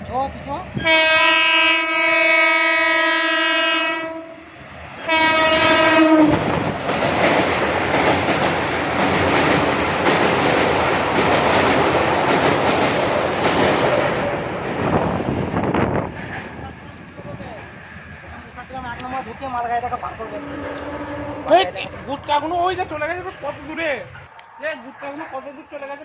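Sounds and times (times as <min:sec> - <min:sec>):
train horn blasts: 0:00.8 - 0:06.5, 0:20.3 - 0:21.8
train wheels rattling on rails: 0:04.8 - 0:24.3.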